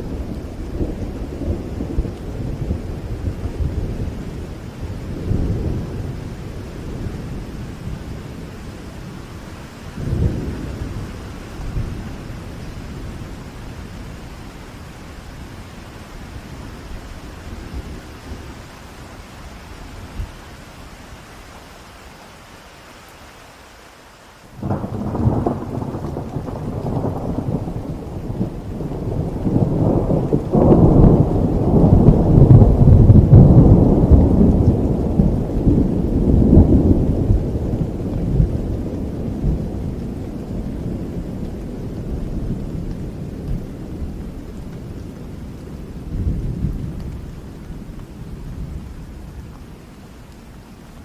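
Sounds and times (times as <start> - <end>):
steady rain: 0.0 - 51.0
thunder rolling: 24.6 - 44.4.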